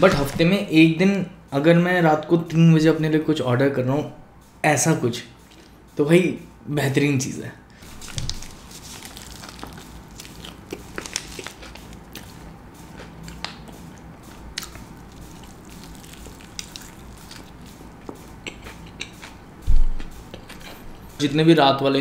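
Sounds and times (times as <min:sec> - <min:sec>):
biting into a wrap: 0:07.8 - 0:19.4
close chewing with wet crunches: 0:08.0 - 0:19.4, 0:20.0 - 0:21.2.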